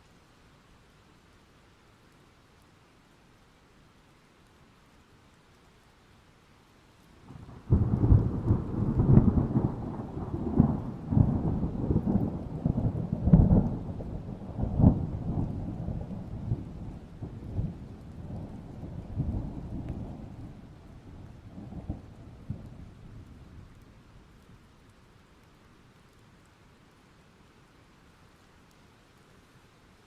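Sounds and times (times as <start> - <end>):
rain: 0.0 - 30.0
thunder rumbling and cracking: 7.3 - 23.8.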